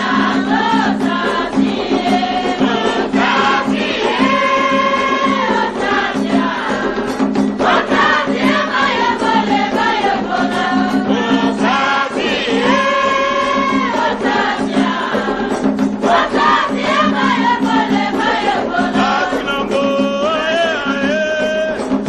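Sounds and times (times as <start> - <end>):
drums and percussion beat: 0.0 - 22.0
group singing a chant: 0.0 - 22.0.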